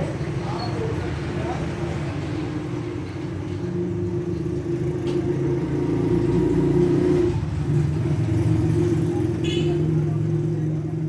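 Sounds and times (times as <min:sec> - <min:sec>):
engine running low hum: 0:02.2 - 0:09.3.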